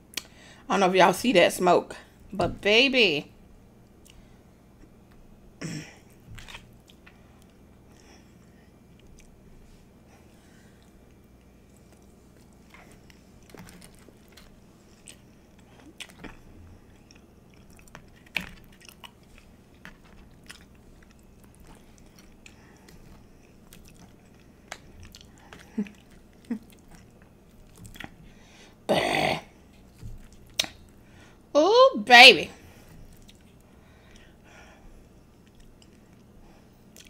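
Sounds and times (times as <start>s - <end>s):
close-miked chewing: 6.1s - 9.4s, 10.2s - 28.4s, 29.7s - 31.0s, 32.8s - 34.3s, 34.9s - 37.0s
sharp mouth clicks: 30.5s - 30.8s.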